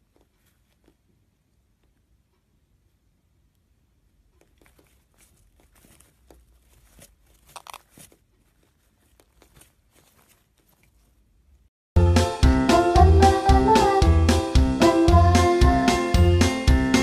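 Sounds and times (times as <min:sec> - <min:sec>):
small clicks and crinkling: 0:00.0 - 0:02.1, 0:04.2 - 0:11.6.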